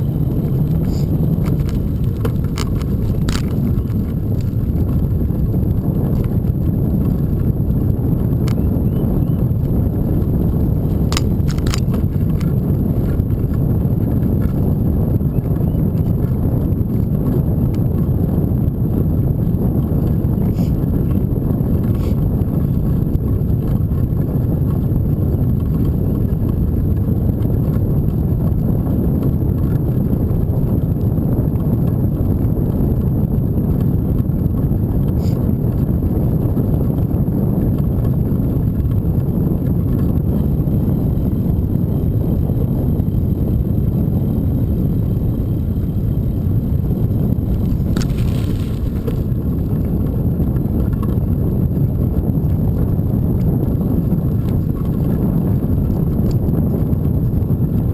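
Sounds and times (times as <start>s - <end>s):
bike rolling noise: 0.0s - 57.9s
wind buffeting microphone: 0.0s - 57.9s.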